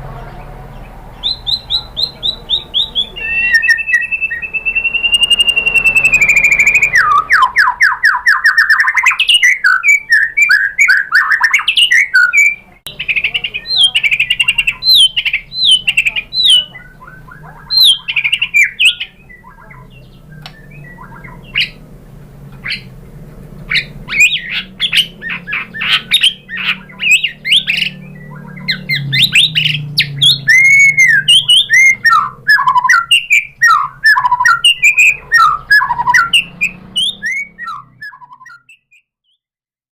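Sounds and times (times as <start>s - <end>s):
bird singing whistles and chirps: 1.2s - 21.8s, 22.6s - 22.9s, 23.7s - 39.4s
low steady hum: 12.5s - 36.5s.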